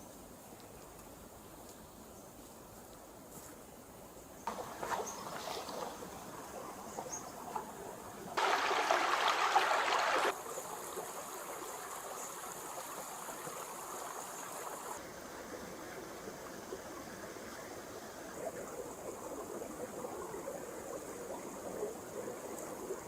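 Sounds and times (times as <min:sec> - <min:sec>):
stream water flowing: 0:04.5 - 0:23.0
louder rush of water: 0:08.4 - 0:15.0.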